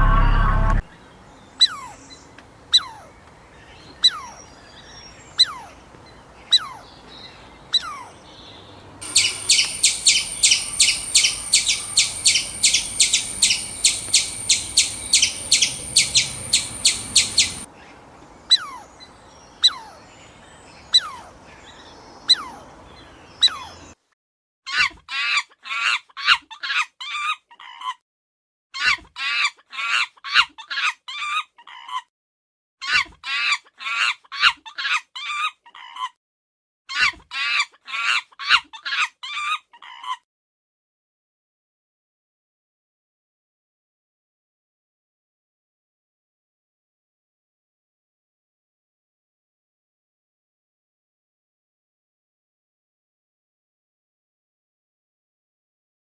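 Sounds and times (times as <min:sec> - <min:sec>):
bird trill: 0:06.5 - 0:17.7
bird falling chirp: 0:09.0 - 0:17.7
quick bird chirps: 0:09.0 - 0:17.7.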